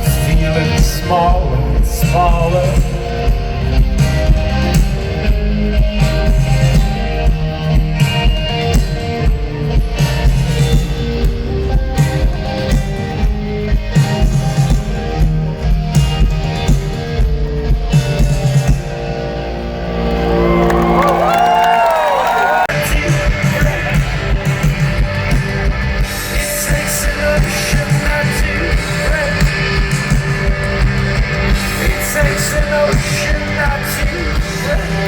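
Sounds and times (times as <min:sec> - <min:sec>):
gliding guitar tones: 0:00.0 - 0:22.0
live rock band playing: 0:00.0 - 0:35.0.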